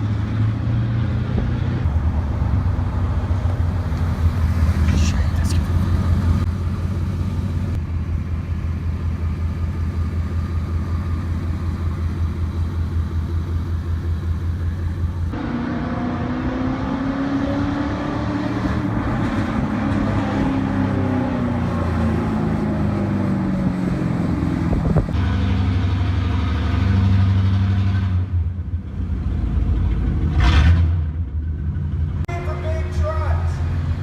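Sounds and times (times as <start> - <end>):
vehicle engine running: 0.0 - 15.6.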